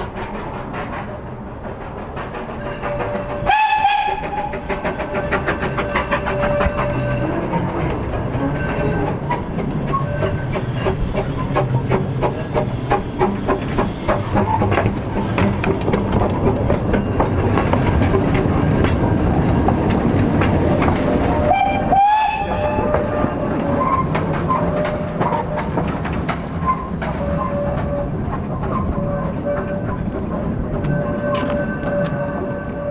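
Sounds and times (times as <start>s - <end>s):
steam train running: 0.0s - 32.9s
train whistle: 2.6s - 7.7s, 9.9s - 10.9s, 21.3s - 25.8s, 26.6s - 30.0s, 30.8s - 32.9s
wheels clicking over track: 4.1s - 32.9s.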